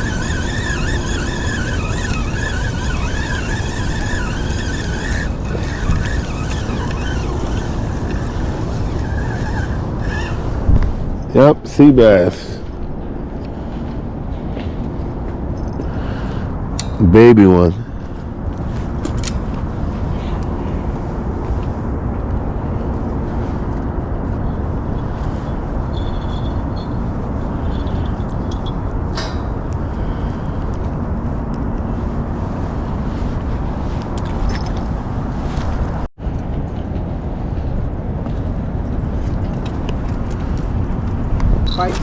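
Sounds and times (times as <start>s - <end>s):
faint high squeals: 0.0s - 11.3s, 25.2s - 28.6s
low rumble background noise: 0.0s - 42.0s.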